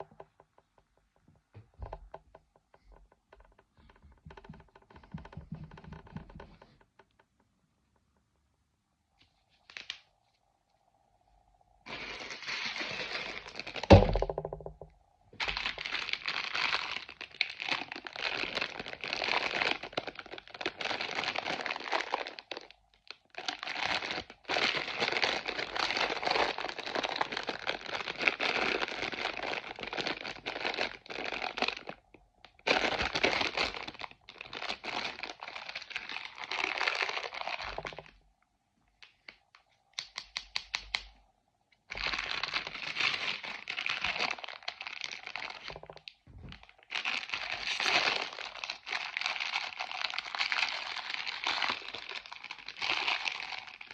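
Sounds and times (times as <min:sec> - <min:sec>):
packaging wrapper crinkling and tearing: 0:11.9 - 0:14.5, 0:15.4 - 0:38.2, 0:39.0 - 0:41.1, 0:41.9 - 0:53.9.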